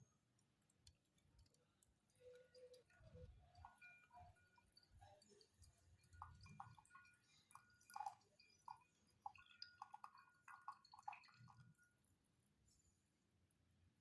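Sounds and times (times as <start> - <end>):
tea dripping: 0.0 - 12.2
porcelain teaware clinking: 2.2 - 11.8.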